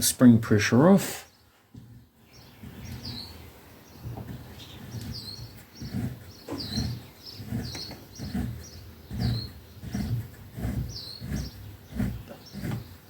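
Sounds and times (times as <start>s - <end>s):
small bird chirping: 1.2s - 13.0s
low uneven thumps: 1.7s - 13.0s.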